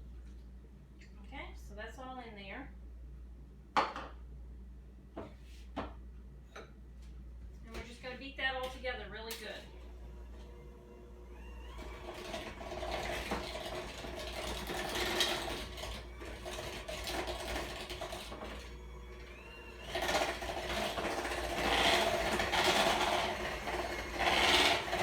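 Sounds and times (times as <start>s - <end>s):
electric mixer beating batter: 9.7s - 25.0s.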